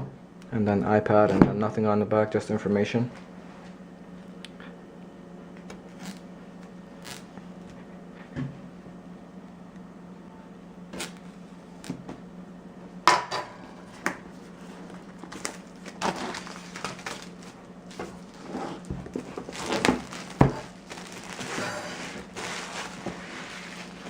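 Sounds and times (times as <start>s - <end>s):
low steady hum: 0.0s - 24.0s
rustling: 14.7s - 24.0s.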